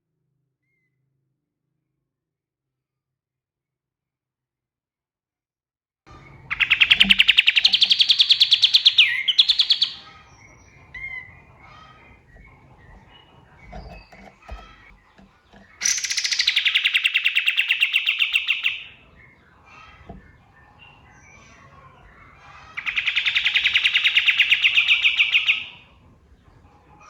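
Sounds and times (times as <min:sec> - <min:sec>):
bird singing rapid trills: 0:06.1 - 0:27.0
faint bird chirps: 0:06.1 - 0:27.0.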